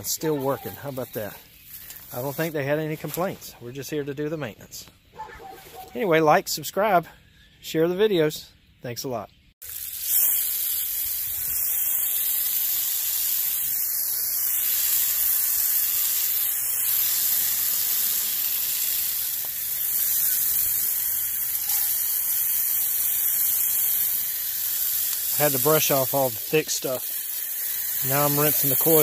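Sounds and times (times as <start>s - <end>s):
water spraying on metal coils: 9.6s - 29.0s.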